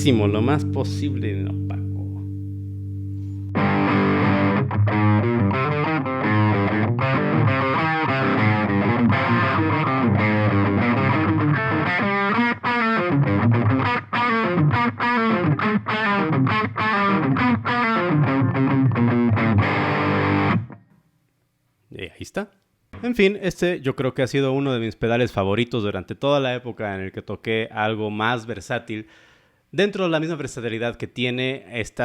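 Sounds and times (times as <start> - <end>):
distorted electric guitar riff: 0.0 - 20.8.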